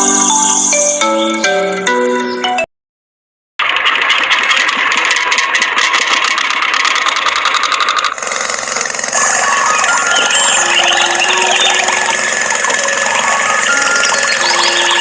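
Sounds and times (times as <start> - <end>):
small motor running: 3.6 - 15.0.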